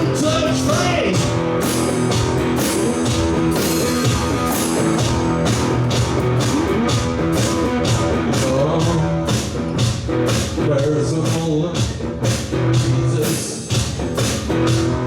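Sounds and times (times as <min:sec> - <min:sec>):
electric guitar riff: 0:00.0 - 0:10.6
drum beat with cymbals: 0:00.0 - 0:15.0.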